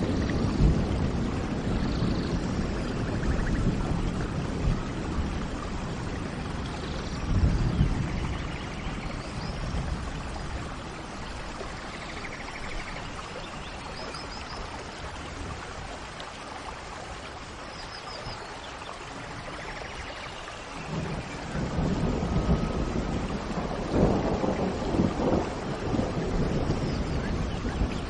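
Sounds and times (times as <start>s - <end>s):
thunder rumble: 0.0s - 14.7s, 20.8s - 28.0s
steady rain: 0.0s - 28.0s.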